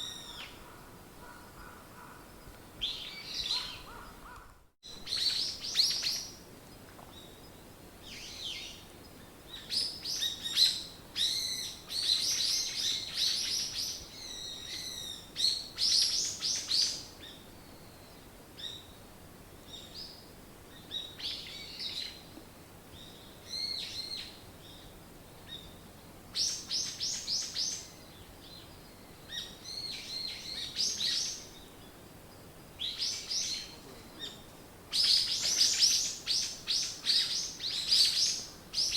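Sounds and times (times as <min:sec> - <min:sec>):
songbirds chirping and trilling: 0:00.0 - 0:19.0, 0:22.9 - 0:38.9.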